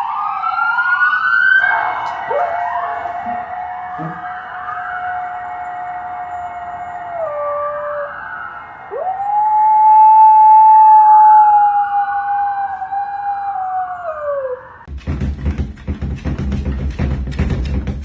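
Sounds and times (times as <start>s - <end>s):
dog howling: 2.2s - 14.9s
music beat: 14.9s - 18.0s.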